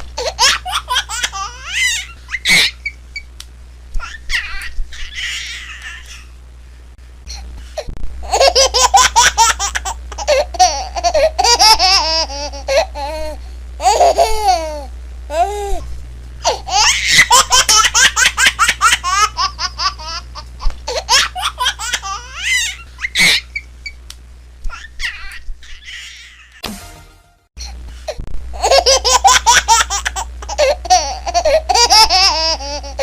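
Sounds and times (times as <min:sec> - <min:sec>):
steady low hum: 0:00.0 - 0:33.0
baby giggling: 0:08.2 - 0:13.2, 0:13.8 - 0:15.5, 0:16.4 - 0:23.6, 0:28.6 - 0:33.0.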